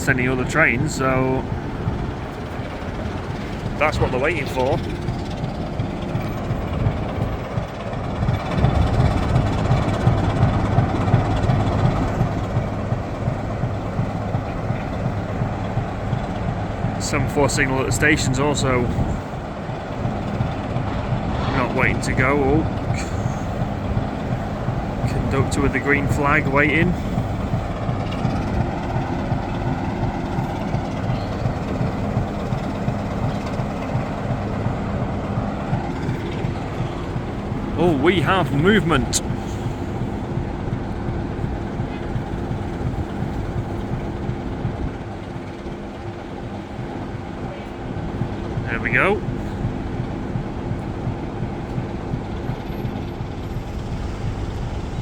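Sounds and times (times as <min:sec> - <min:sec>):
diesel locomotive engine idling: 0:00.0 - 0:55.0.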